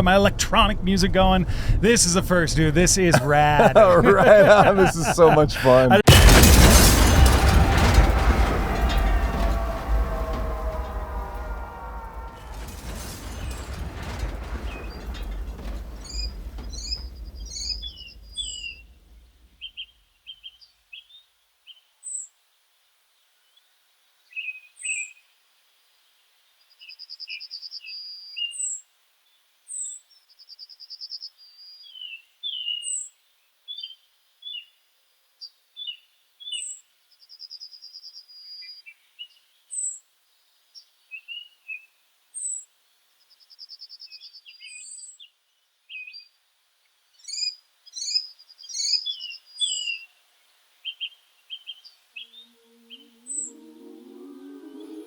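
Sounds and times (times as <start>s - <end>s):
low rumble: 0.0s - 19.4s, 52.6s - 55.0s.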